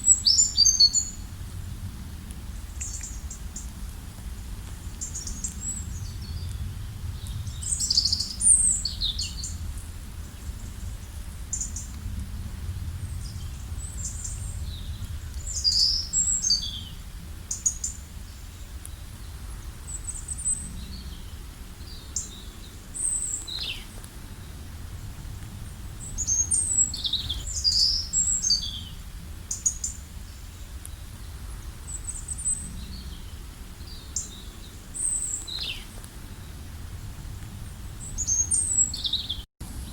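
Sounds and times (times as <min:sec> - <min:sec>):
wild birds chirping and singing: 0:00.0 - 0:01.3, 0:04.9 - 0:12.0, 0:12.9 - 0:36.7, 0:37.6 - 0:39.9
steady low rumble: 0:00.0 - 0:39.9.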